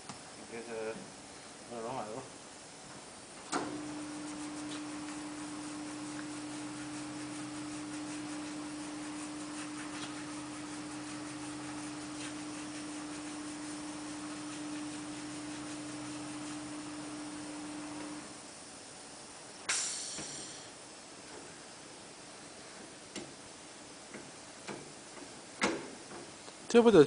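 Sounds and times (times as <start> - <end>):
tyre changer motor humming: 3.5 - 18.4
hiss: 3.5 - 18.5, 19.6 - 21.8.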